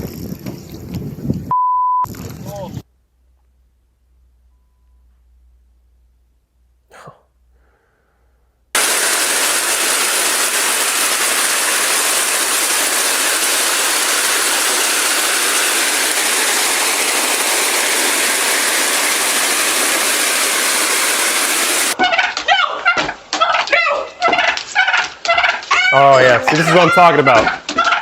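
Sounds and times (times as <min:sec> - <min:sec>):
loud hiss-like rushing noise: 0:08.8 - 0:22.0.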